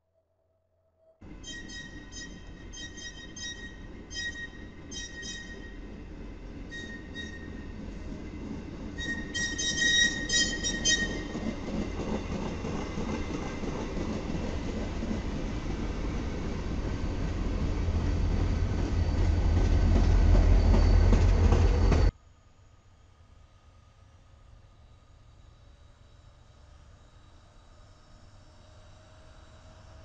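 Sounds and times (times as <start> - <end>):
high wheel squeal: 1.2 - 5.9, 6.6 - 7.8, 9.0 - 11.4
train wheels rumbling on rail: 1.2 - 22.2.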